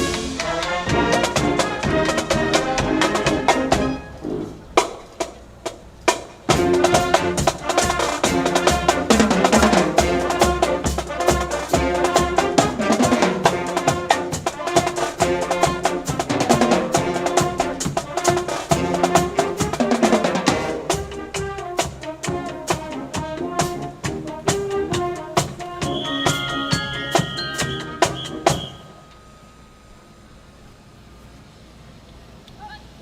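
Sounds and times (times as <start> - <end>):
brass band playing: 0.0 - 5.4, 6.1 - 29.2.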